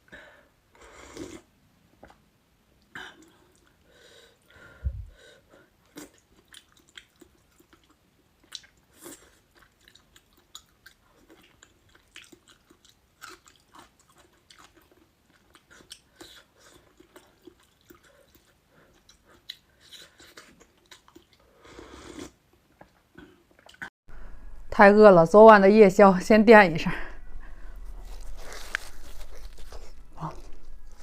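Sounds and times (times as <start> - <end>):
person chewing food: 5.8 - 23.9, 27.3 - 31.0.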